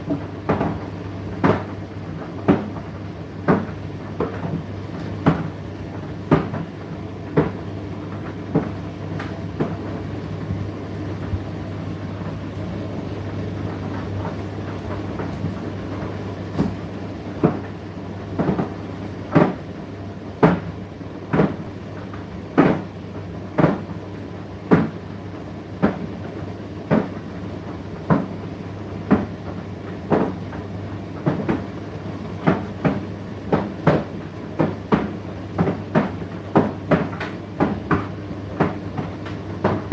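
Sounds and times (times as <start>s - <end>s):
tumble dryer humming: 0.0s - 22.0s.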